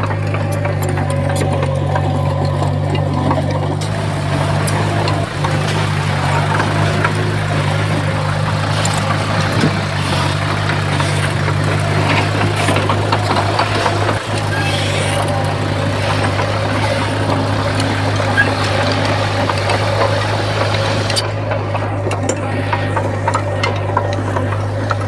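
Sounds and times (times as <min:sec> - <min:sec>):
heavy diesel engine running: 0:00.0 - 0:25.0.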